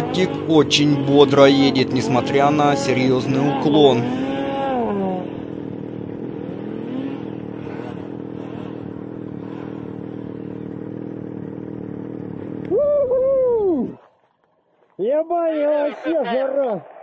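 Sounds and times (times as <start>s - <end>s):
man's voice: 0.0s - 5.2s, 15.0s - 16.9s
snowmobile engine running: 0.0s - 14.2s.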